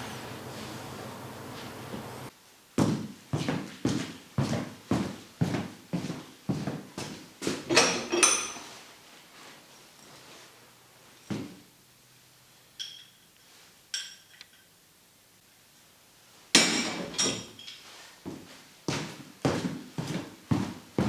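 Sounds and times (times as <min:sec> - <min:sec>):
ringing clinks of hard objects: 0:08.0 - 0:08.7, 0:12.8 - 0:13.3.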